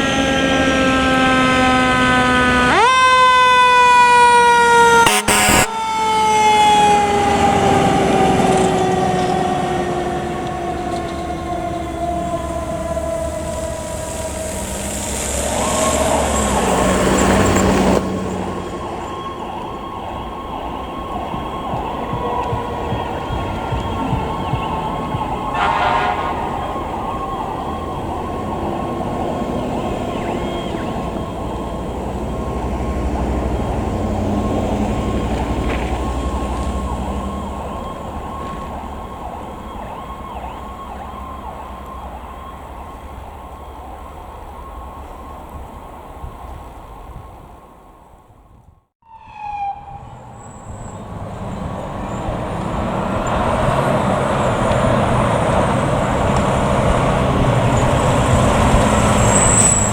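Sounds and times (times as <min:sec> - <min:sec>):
fire truck siren wailing: 0:00.0 - 0:59.9
low horn-like tone: 0:04.8 - 0:05.8, 0:22.0 - 0:29.0.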